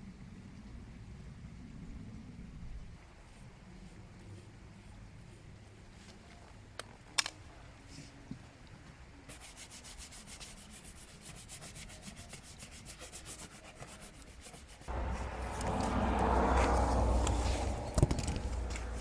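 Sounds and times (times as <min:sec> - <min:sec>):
loud rushing noise: 0:14.9 - 0:19.0.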